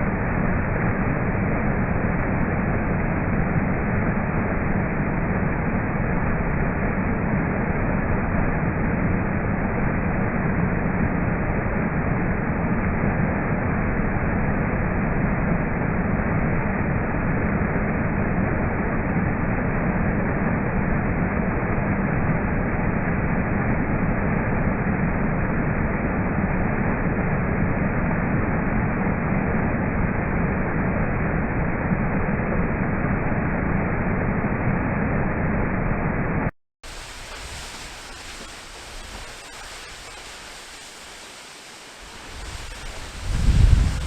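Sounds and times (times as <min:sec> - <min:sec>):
thin rush of water: 0:36.8 - 0:44.0
waterfall rushing: 0:36.9 - 0:44.0.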